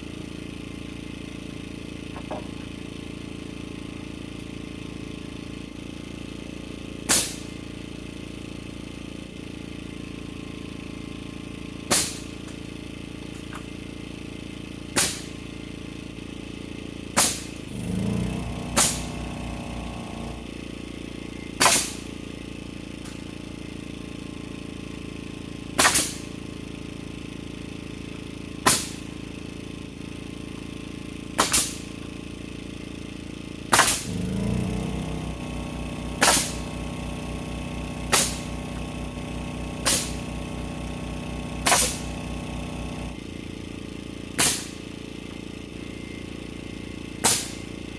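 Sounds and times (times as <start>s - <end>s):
nail gun shots: 7.1s - 7.6s, 11.9s - 12.4s, 14.9s - 15.4s, 17.2s - 20.4s, 21.6s - 22.2s, 25.8s - 26.4s, 28.6s - 29.1s, 31.4s - 31.9s, 33.7s - 34.1s, 36.2s - 36.8s, 38.0s - 38.6s, 39.7s - 40.4s, 41.6s - 42.2s, 44.4s - 44.9s, 47.2s - 47.7s
steady hum: 17.1s - 22.2s, 33.8s - 47.9s.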